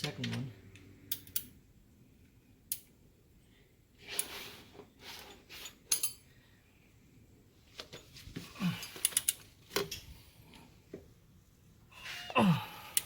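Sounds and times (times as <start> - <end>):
metal hand tools clinking: 5.5 - 6.3.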